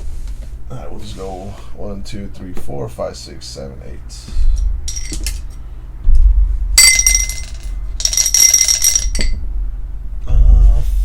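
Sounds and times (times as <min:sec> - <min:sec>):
low hum: 0:04.4 - 0:11.0
metallic jingling: 0:04.9 - 0:05.6, 0:06.8 - 0:09.4.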